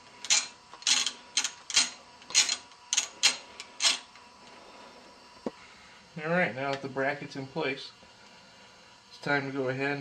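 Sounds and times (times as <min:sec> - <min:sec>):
ratchet wrench clicking: 0:00.2 - 0:04.1.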